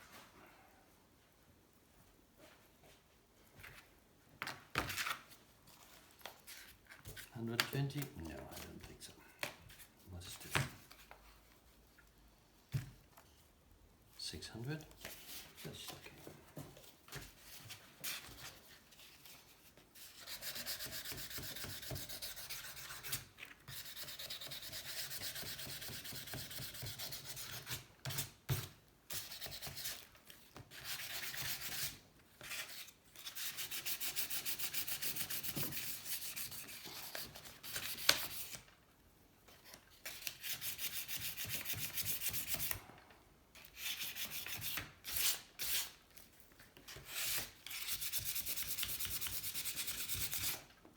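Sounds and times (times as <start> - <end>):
hand sanding strokes: 33.3 - 36.8.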